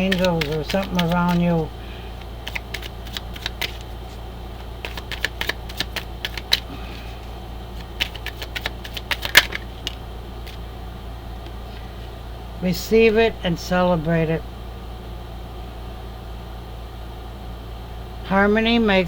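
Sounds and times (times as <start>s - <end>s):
cards clicking and snapping: 0.0s - 4.0s, 4.6s - 7.1s, 7.8s - 10.6s
steady low hum: 0.0s - 19.0s.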